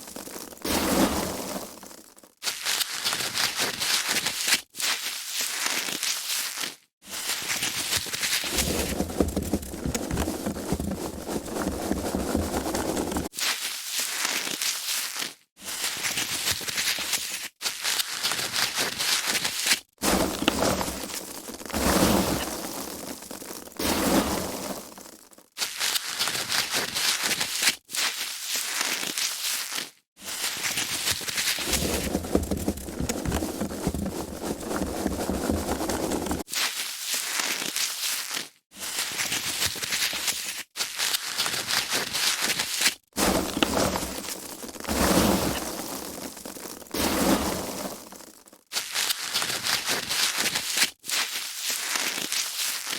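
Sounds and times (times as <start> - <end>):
foam packaging being crushed: 1.8 - 23.8, 24.9 - 52.9.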